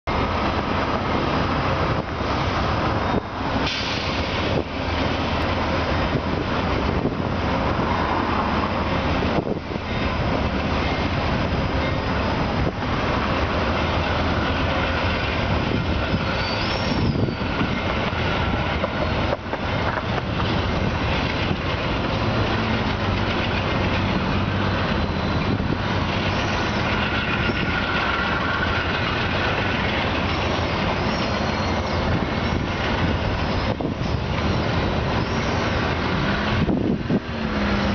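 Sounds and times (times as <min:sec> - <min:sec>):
locomotive engine running: 0:00.1 - 0:37.9
train cars rumbling on rails: 0:00.1 - 0:37.9
brief high squeal: 0:16.2 - 0:17.6, 0:31.0 - 0:32.1, 0:35.2 - 0:35.8.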